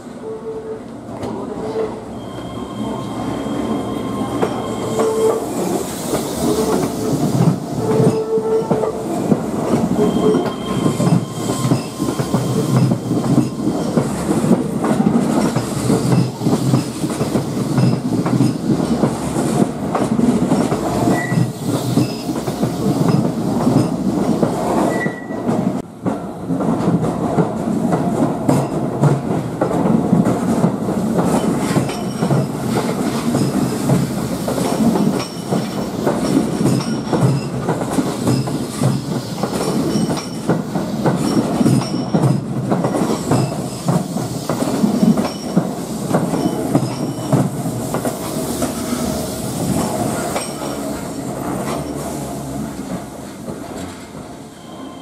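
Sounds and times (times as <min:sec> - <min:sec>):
flange squeal: 0:02.1 - 0:05.8, 0:10.0 - 0:13.9, 0:54.6 - 0:55.0
train wheels clattering over joints: 0:04.4 - 0:54.2.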